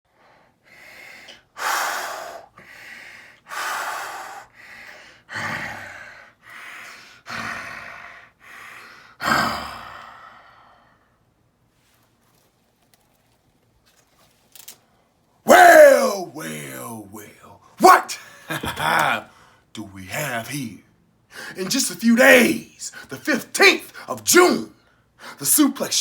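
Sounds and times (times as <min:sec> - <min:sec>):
person breathing heavily: 0:00.1 - 0:11.1, 0:21.3 - 0:21.8.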